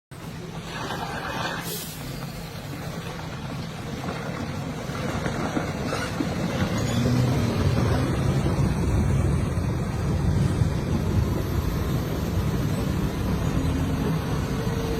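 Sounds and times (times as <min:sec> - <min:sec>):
truck engine rumbling: 0:00.1 - 0:14.9.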